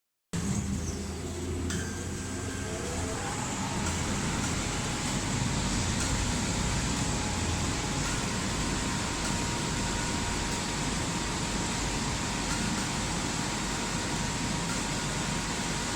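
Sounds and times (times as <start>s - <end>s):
laser cutter whir and hiss: 0.4s - 15.9s.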